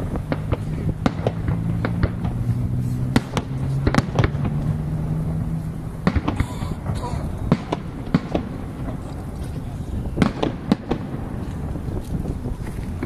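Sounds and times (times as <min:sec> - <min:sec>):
low hum: 0:00.0 - 0:10.2
fireworks bangs and pops: 0:00.0 - 0:13.0.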